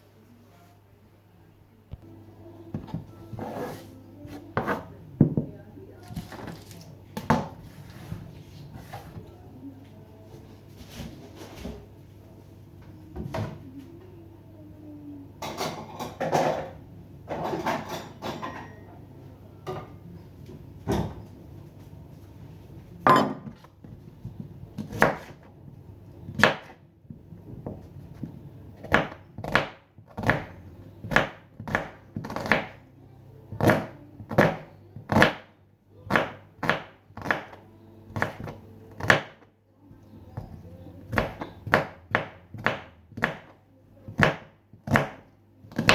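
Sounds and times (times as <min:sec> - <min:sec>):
knife chopping on cutting board: 0:04.6 - 0:05.5, 0:24.8 - 0:25.4, 0:26.3 - 0:26.8, 0:27.6 - 0:32.8, 0:36.1 - 0:37.6, 0:40.4 - 0:45.9.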